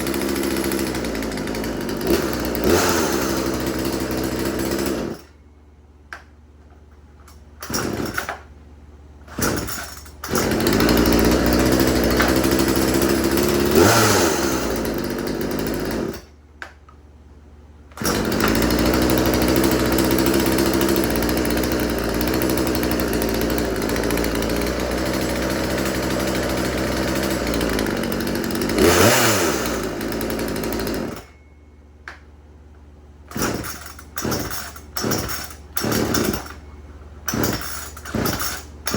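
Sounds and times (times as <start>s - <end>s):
chainsaw pull-starting and running: 0.0s - 5.4s, 7.3s - 8.5s, 9.2s - 16.4s, 18.0s - 31.4s, 33.3s - 38.9s.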